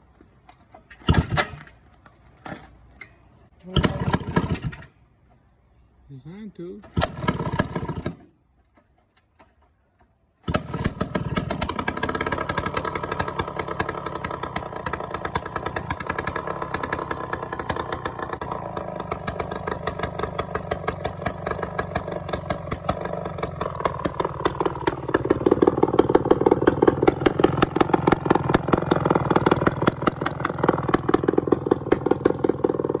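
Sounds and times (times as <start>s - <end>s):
dirt bike engine running: 10.5s - 33.0s.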